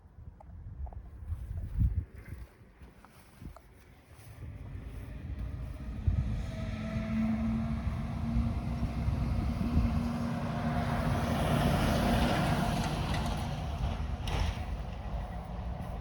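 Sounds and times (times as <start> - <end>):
tractor diesel engine running: 4.0 - 16.0.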